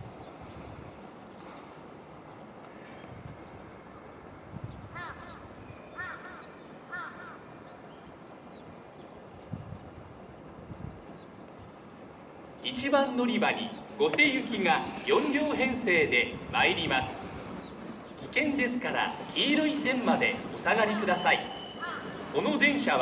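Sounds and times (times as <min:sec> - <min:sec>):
small birds chirping: 0:00.0 - 0:23.0
crow cawing: 0:05.0 - 0:05.4, 0:06.0 - 0:07.5, 0:21.8 - 0:22.2.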